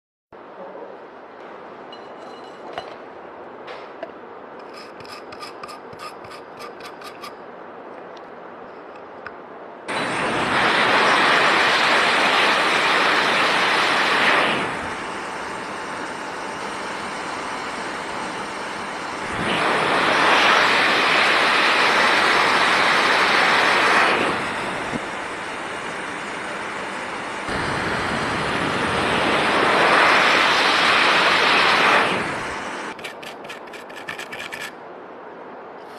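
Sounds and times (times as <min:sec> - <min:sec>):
loud even rushing noise: 0:09.8 - 0:33.0.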